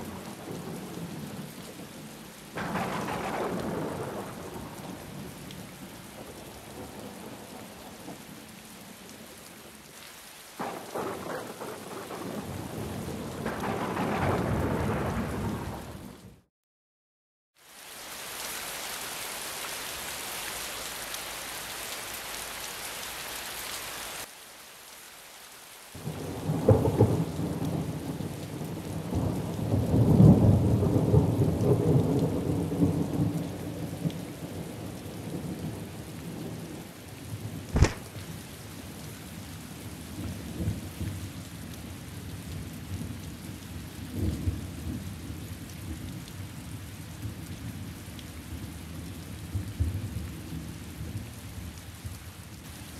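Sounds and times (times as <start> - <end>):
steady rain hiss: 0.0 - 16.0, 17.6 - 52.9
sharp thunder crack: 2.6 - 4.3, 37.8 - 38.2
thunder rumbling: 2.6 - 8.2, 10.6 - 16.2.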